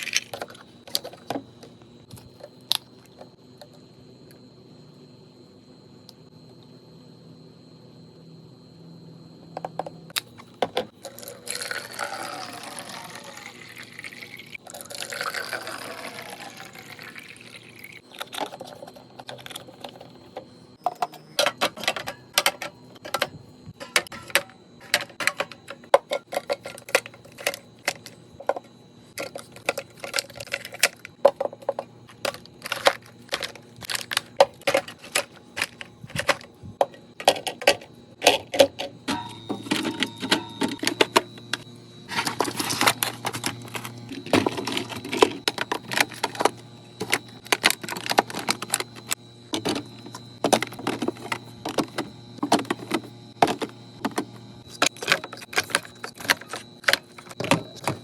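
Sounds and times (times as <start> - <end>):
liquid pouring into container: 11.1 - 18.0
containers clicking and tapping: 13.5 - 58.0.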